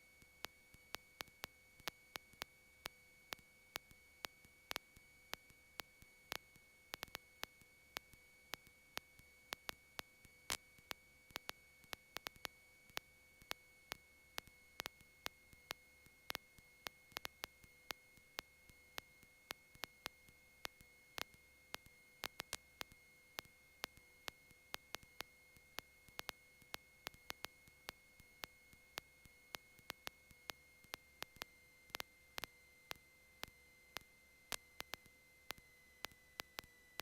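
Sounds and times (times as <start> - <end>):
sharp electrical ticks: 0.4 - 9.8, 10.5 - 13.1, 13.9 - 37.0.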